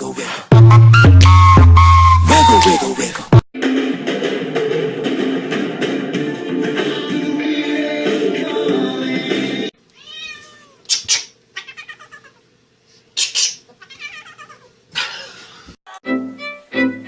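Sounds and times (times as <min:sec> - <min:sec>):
music with a beat: 0:00.5 - 0:02.8
cat meowing: 0:10.0 - 0:10.9, 0:11.6 - 0:12.4, 0:13.8 - 0:14.7.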